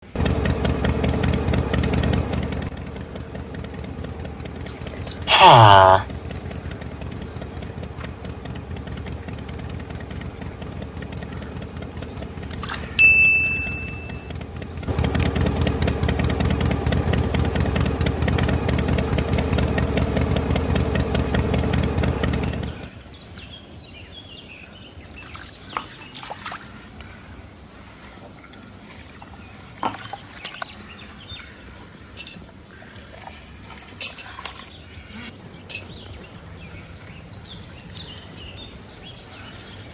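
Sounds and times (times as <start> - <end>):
truck engine running loudly: 0.0 - 23.2, 34.9 - 39.9
brief high beep: 13.0 - 14.3
faint chirps and clicks: 29.8 - 30.8, 33.6 - 34.7, 35.6 - 36.2, 37.0 - 39.9.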